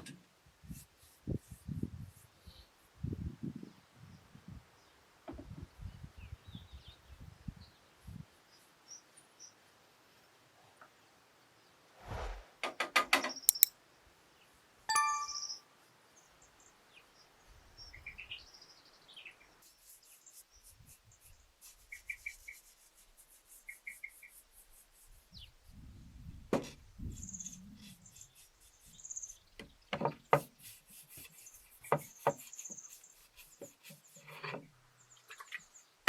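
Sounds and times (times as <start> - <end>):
brief low rumble: 12.0 - 12.5.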